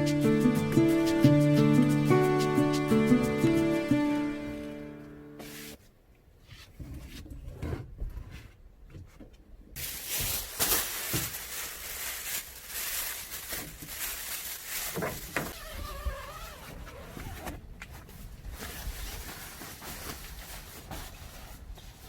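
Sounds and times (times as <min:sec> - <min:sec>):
rustling and handling noise: 0:05.3 - 0:22.0.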